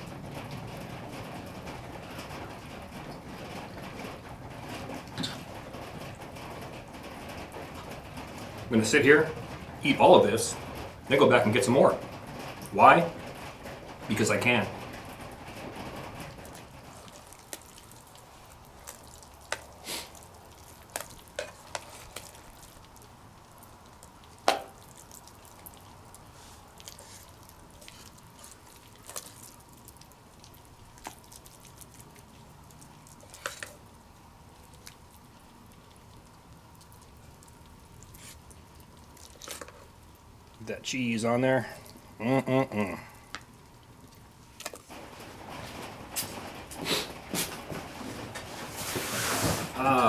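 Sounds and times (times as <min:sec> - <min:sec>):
low steady background noise: 0:00.0 - 0:50.0
utensil scraping metal pot: 0:16.5 - 0:22.8.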